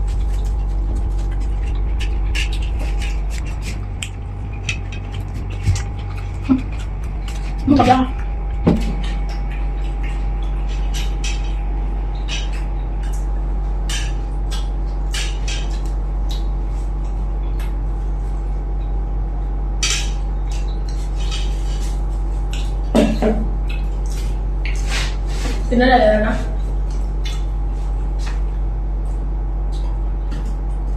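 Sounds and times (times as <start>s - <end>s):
loud steady hum: 0.0s - 30.9s.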